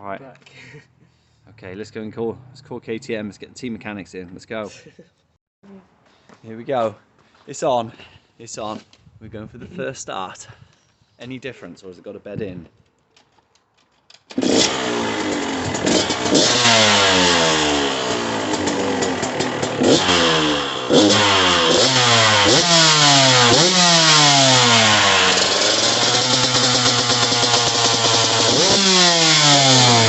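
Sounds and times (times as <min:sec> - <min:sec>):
two-stroke motorcycle engine revving: 0:14.3 - 0:30.0.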